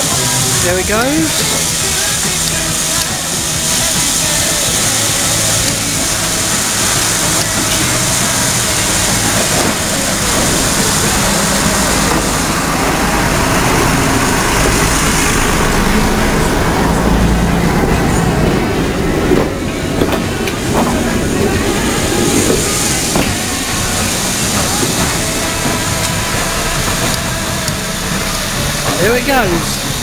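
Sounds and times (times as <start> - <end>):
locomotive low rumble: 0.0 - 30.0
locomotive steam hiss: 0.0 - 30.0.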